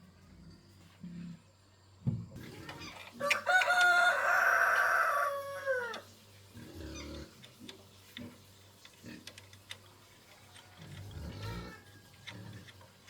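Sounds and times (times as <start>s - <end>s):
rooster crowing: 3.2s - 6.0s.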